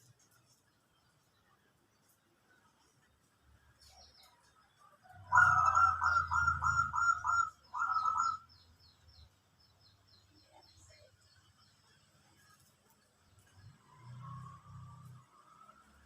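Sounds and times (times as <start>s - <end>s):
small bird chirping: 0.0s - 15.5s
dove cooing: 5.2s - 8.4s.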